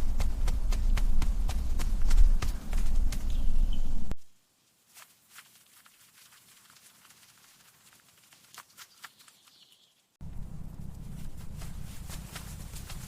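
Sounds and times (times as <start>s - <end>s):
scratching and scrabbling in soil: 0.0s - 13.0s
loud dense crackling rumble: 10.2s - 13.0s.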